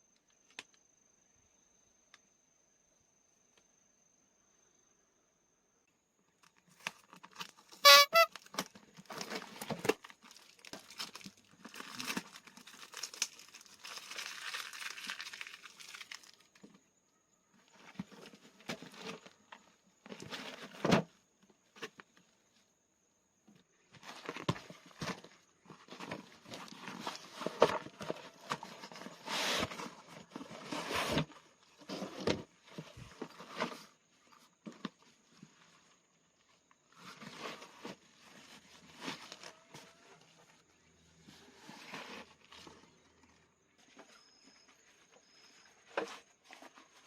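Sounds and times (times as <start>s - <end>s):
crinkling and rustling: 6.4s - 16.9s, 17.6s - 22.6s, 23.5s - 47.0s.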